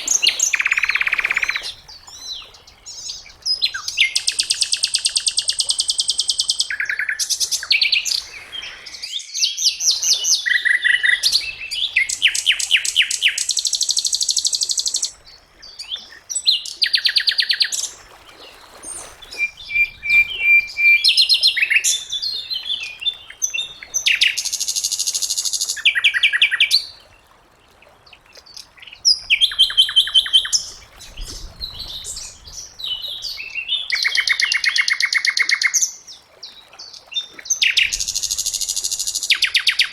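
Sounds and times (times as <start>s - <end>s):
bird singing rattling trills: 0.0s - 5.4s.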